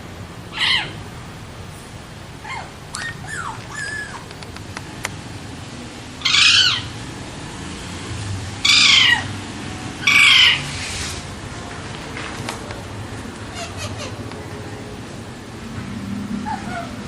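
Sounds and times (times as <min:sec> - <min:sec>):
parakeet calling: 0:00.5 - 0:01.0, 0:02.4 - 0:04.3, 0:06.2 - 0:07.0, 0:08.6 - 0:09.4, 0:10.0 - 0:10.8, 0:13.4 - 0:14.5.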